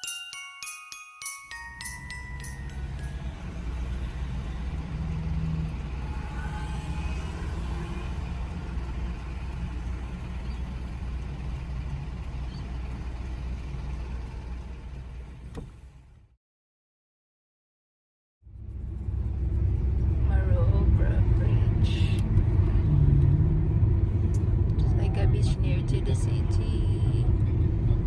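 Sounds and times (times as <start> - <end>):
road rumble inside car: 2.0 - 16.4, 18.5 - 28.0.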